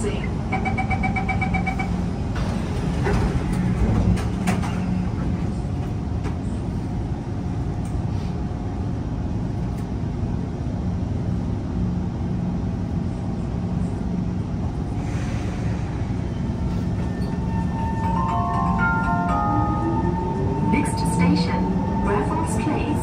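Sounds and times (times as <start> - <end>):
train low rumble: 0.0 - 23.0
two-tone door-closing beeping: 0.5 - 2.0.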